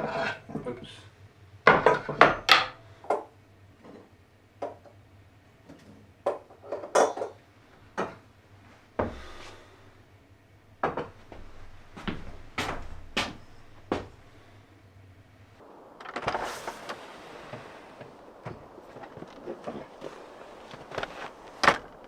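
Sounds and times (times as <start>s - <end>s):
hard objects knocking: 10.8s - 14.2s.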